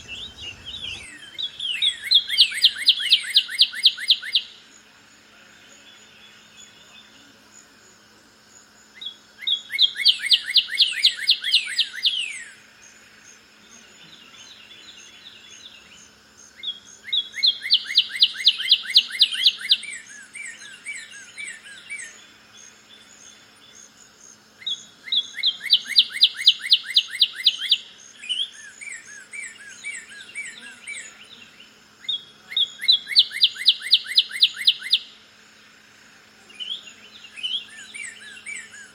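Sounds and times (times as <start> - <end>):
bird singing slurred whistles: 0.0 - 4.5, 32.0 - 35.1
faint high-pitched bird chatter: 0.0 - 7.9, 8.6 - 35.3, 36.4 - 38.9.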